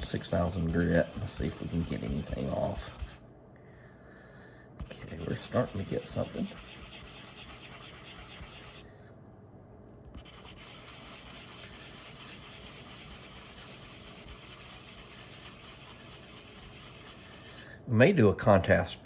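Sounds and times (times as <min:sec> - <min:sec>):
sanding pad rubbing wood: 0:00.0 - 0:03.2, 0:04.8 - 0:08.8, 0:10.2 - 0:17.6.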